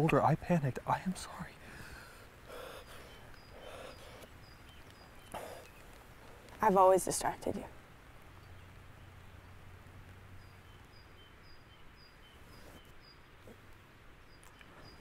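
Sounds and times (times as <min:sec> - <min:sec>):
small bird chirping: 0:02.4 - 0:07.6, 0:10.4 - 0:13.6, 0:14.2 - 0:15.0.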